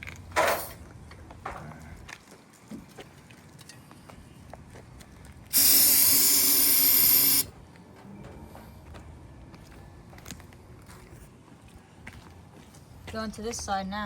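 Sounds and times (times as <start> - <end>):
aerosol can spraying: 5.5 - 7.5.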